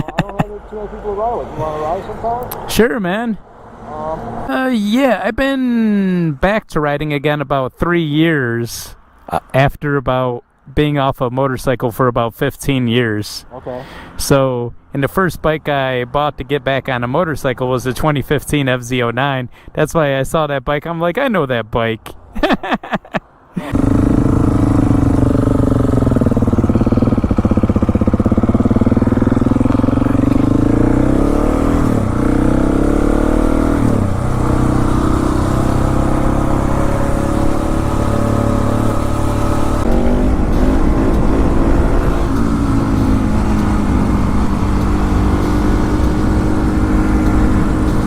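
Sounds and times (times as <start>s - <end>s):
motorcycle engine running: 23.7s - 48.0s.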